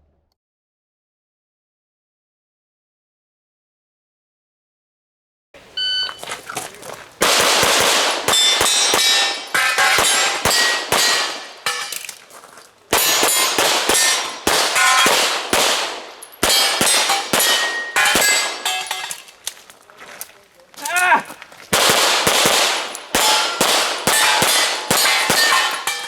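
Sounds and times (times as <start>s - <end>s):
steel targets clanging: 5.7s - 19.6s, 22.2s - 26.0s
rapid gunshots: 7.2s - 11.7s, 12.9s - 18.6s, 21.7s - 26.0s.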